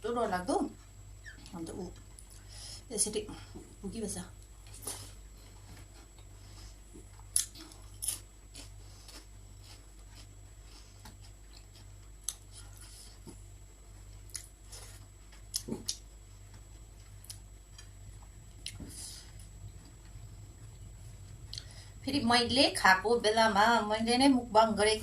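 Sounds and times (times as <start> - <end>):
faint steady hum: 0.0 - 25.0
person eating crunches: 4.6 - 20.2.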